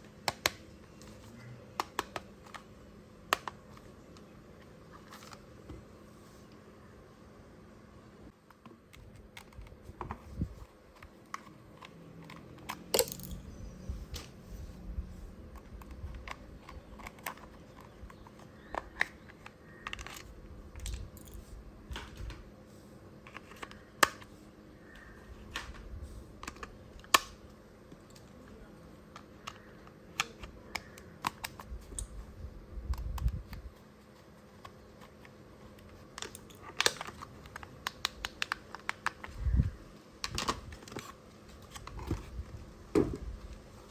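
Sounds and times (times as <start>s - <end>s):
faint steady hum: 0.0s - 43.9s
plastic toy parts clicking: 11.0s - 13.4s, 29.1s - 32.2s, 34.6s - 39.4s.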